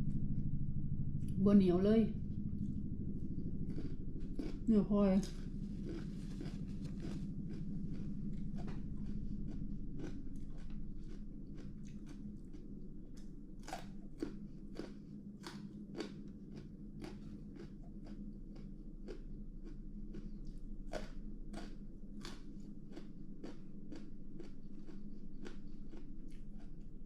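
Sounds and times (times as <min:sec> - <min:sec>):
food crunching: 0:02.6 - 0:27.0
wet chewing: 0:02.6 - 0:27.0.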